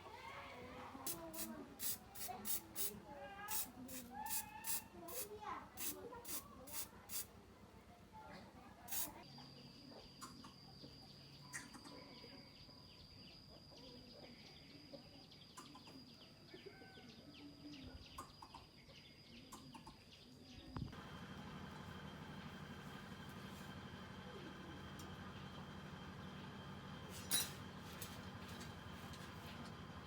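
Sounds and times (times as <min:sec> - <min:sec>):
bird chirps: 0:09.8 - 0:20.7.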